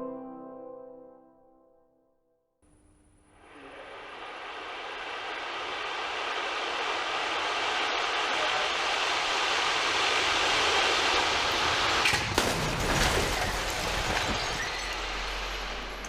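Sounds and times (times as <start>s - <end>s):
rushing noise: 3.3s - 16.0s
car crashing into barrier: 10.6s - 16.0s.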